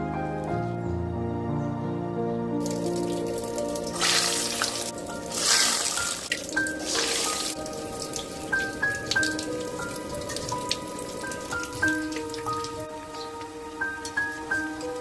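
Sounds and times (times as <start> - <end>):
soft instrumental music: 0.0 - 15.0
food sizzling in hot oil: 2.6 - 13.3.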